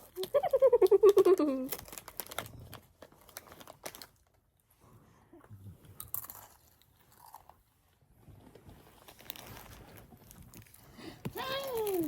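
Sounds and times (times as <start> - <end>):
person chewing crunchy snack: 6.0 - 7.7.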